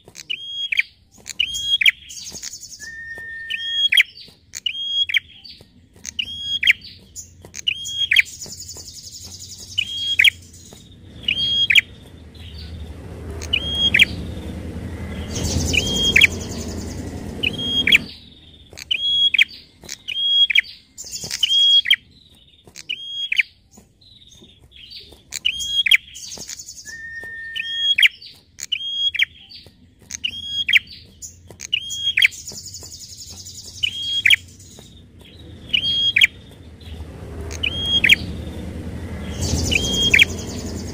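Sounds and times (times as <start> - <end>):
low rumble: 10.3 - 18.7, 33.8 - 40.9.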